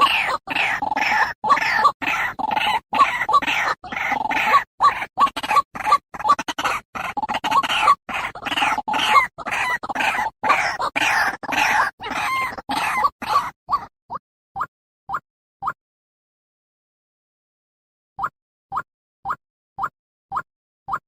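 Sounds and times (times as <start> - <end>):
waterhen calls: 0.0 - 13.9.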